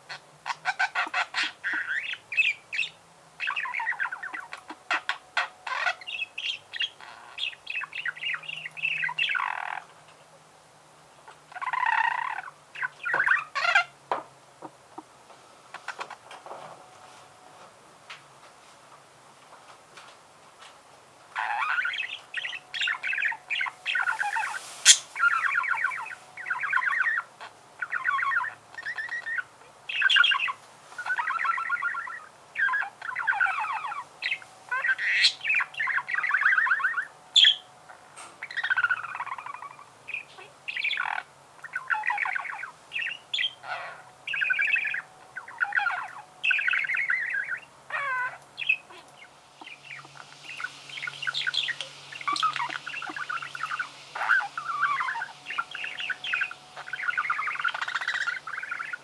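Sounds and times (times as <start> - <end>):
budgerigar warbling: 38.4 - 59.0.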